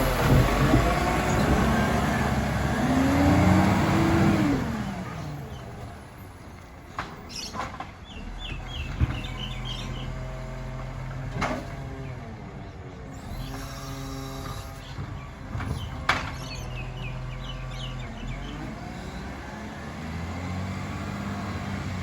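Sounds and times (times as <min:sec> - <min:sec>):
diesel truck engine pulling away: 0:00.0 - 0:06.6, 0:07.4 - 0:22.0
bird chirps: 0:07.3 - 0:10.2.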